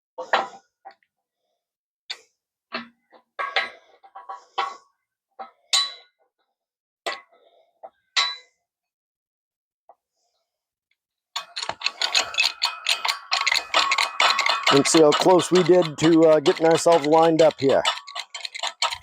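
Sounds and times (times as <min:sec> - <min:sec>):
metal tools clinking: 0:11.4 - 0:19.0.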